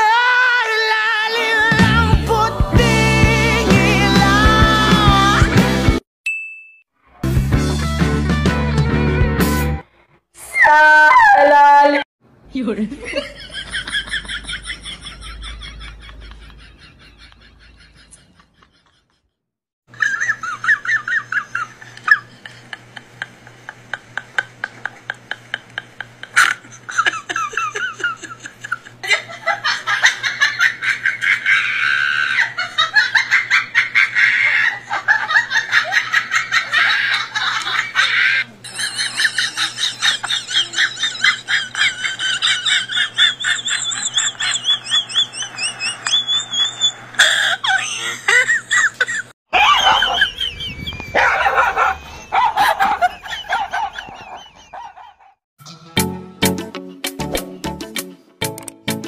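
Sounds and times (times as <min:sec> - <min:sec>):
person laughing hard: 0:13.1 - 0:19.2, 0:20.0 - 0:56.0.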